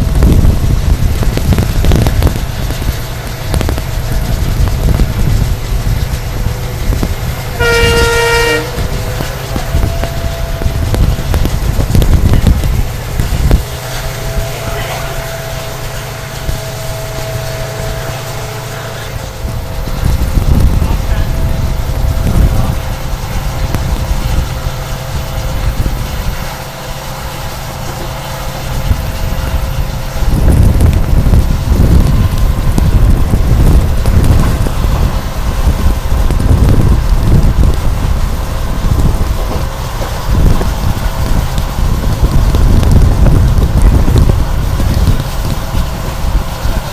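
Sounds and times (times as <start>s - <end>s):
train rumble: 0.0s - 46.9s
wheels clicking over rails: 0.0s - 46.9s
locomotive horn blast: 7.4s - 27.0s.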